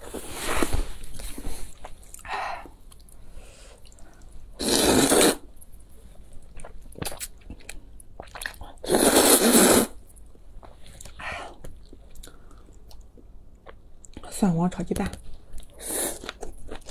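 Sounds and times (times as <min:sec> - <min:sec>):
soft chewing: 0:01.0 - 0:04.5, 0:05.9 - 0:08.8, 0:10.1 - 0:16.9.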